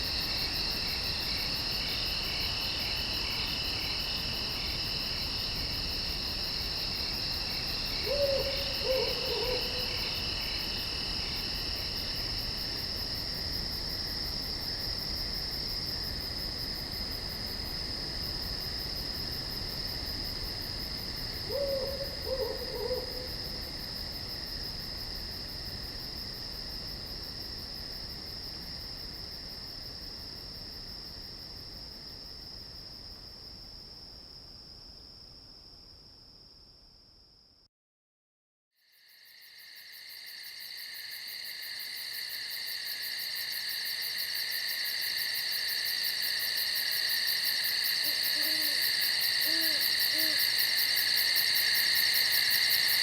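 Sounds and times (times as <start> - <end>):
insects chirring: 0.0 - 16.7, 17.4 - 26.7, 40.4 - 53.0
owl hooting: 8.0 - 10.0, 21.5 - 23.4, 48.0 - 50.6.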